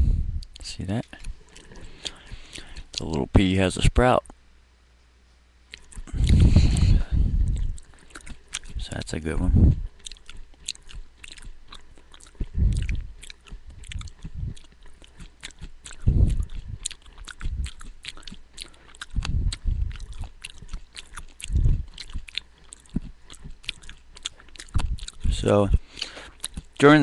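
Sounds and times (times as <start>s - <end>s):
dull low thumps: 0.0s - 0.6s, 6.0s - 7.8s, 8.7s - 9.9s, 12.3s - 14.8s, 15.6s - 18.0s, 19.0s - 20.8s, 21.4s - 22.3s, 24.7s - 25.8s
person chewing crunchy beans: 0.4s - 3.3s, 5.7s - 27.0s.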